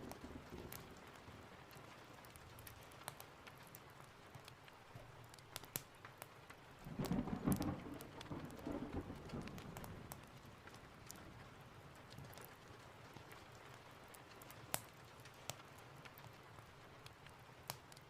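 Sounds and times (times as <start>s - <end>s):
sharp ticks and crackles: 0.0s - 18.0s
steady rain: 0.0s - 18.0s
thunder rumble: 6.9s - 10.6s.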